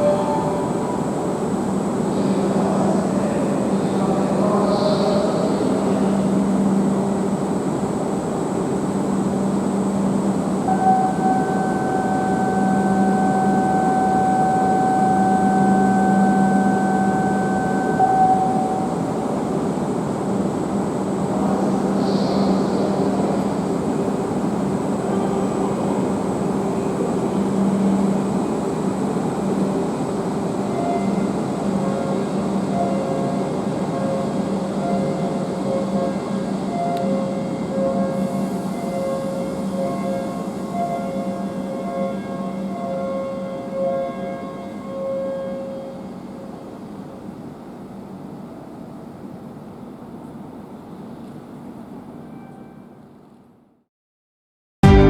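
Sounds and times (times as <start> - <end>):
steady high tone: 0.0 - 3.2, 9.1 - 19.7
train running hum: 0.0 - 53.7.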